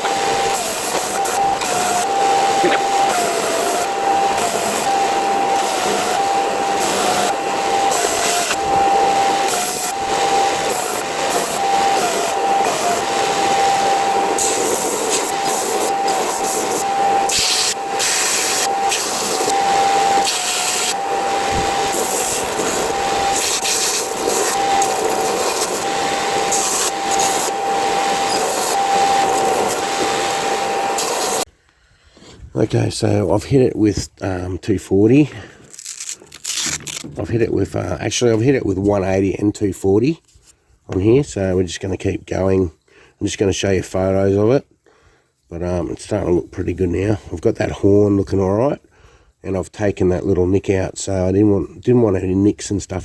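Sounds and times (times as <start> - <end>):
belt sander whine: 0.0 - 31.5
grinding rasp on bronze: 0.4 - 13.8, 14.4 - 30.0.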